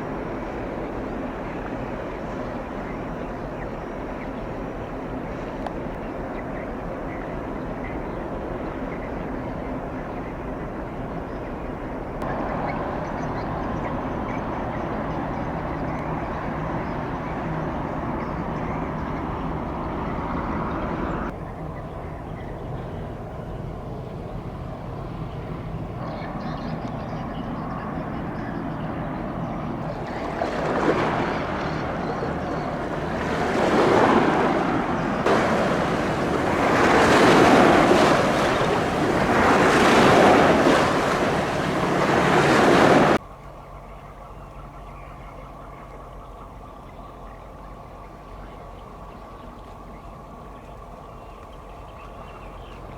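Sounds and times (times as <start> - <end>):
rushing water and wind: 0.0 - 10.6, 29.3 - 43.2
ship engine drone: 28.0 - 44.8.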